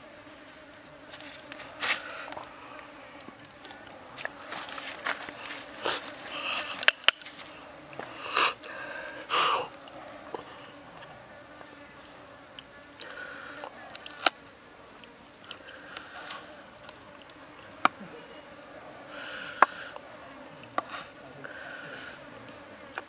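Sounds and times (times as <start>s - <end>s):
loud hissing bursts: 8.1s - 9.8s, 19.1s - 20.0s, 20.9s - 22.3s.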